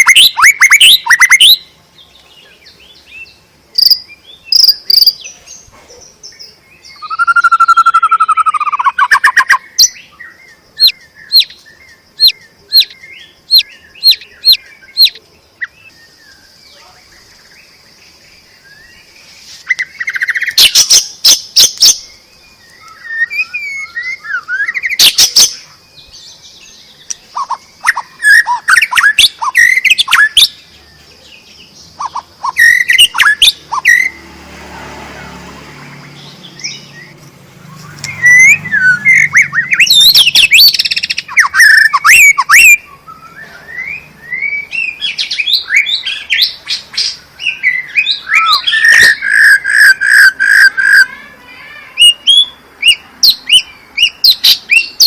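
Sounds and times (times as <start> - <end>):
bird singing whistles and rattles: 0.0 - 1.6, 7.0 - 10.0, 32.0 - 34.1, 36.6 - 46.3.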